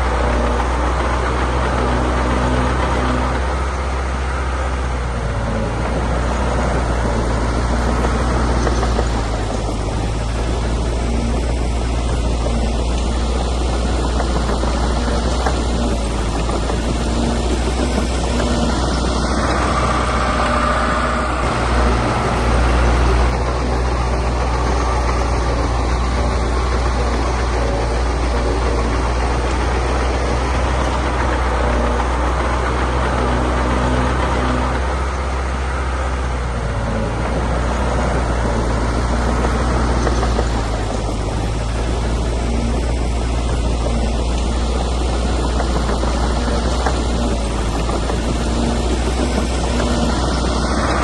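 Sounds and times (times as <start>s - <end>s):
heavy diesel engine running: 0.0s - 51.0s.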